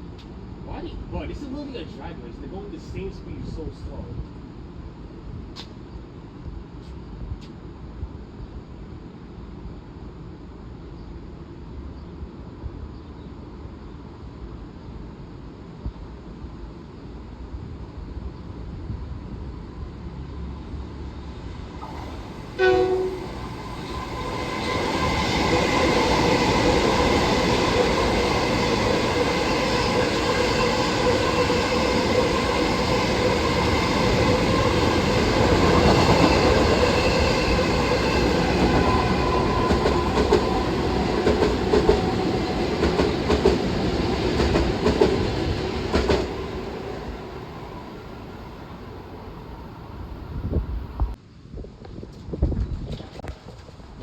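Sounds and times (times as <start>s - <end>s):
train passing with rush and whine: 0.0s - 54.0s
train horn blast: 22.5s - 24.8s.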